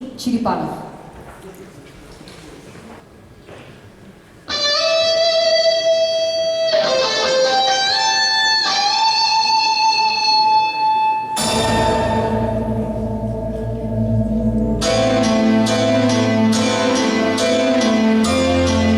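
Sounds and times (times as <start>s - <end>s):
electric guitar lead melody: 4.5s - 18.9s
backing band with bass: 11.4s - 18.9s.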